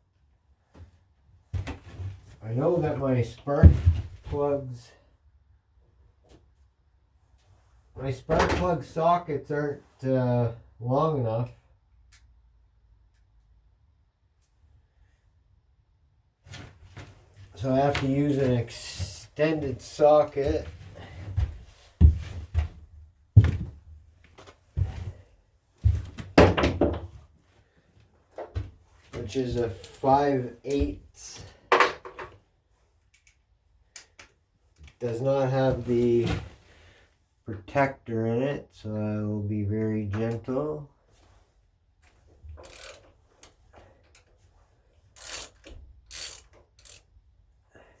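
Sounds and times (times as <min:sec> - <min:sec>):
socket ratchet clicking: 0:42.6 - 0:43.0, 0:45.2 - 0:47.1.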